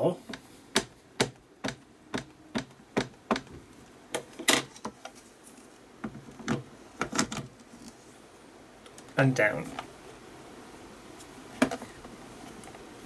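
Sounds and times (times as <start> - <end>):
tools tapping and clicking: 0.3 - 3.5.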